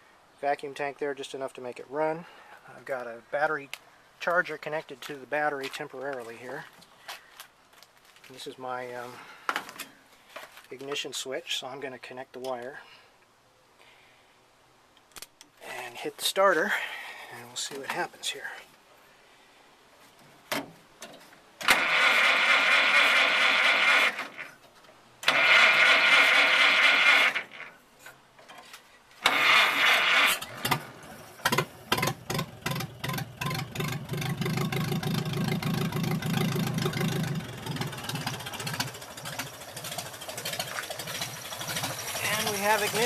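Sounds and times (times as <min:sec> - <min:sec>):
starter motor cranking engine: 0:21.6 - 0:24.4, 0:25.2 - 0:27.7, 0:29.2 - 0:43.0
engine firing with sharp pops: 0:29.2 - 0:43.0
engine idling: 0:29.3 - 0:43.0.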